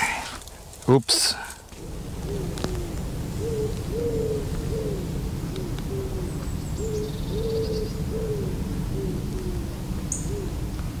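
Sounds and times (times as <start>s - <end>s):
low rumble: 1.7s - 11.0s
bird hooting: 2.1s - 10.6s.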